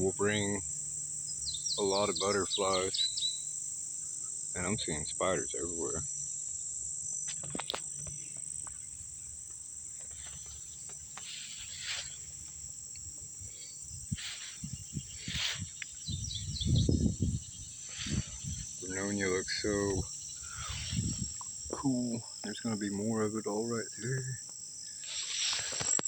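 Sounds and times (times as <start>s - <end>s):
crickets trilling: 0.0s - 26.0s
rustles: 6.0s - 26.0s
low thumps: 12.4s - 21.8s.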